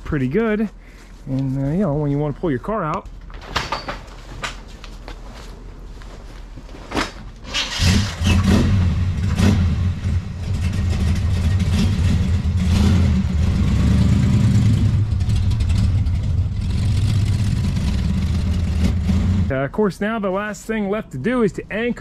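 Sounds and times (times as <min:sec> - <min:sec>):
car engine rumbling: 0:07.4 - 0:19.6
car engine starting: 0:07.4 - 0:19.6.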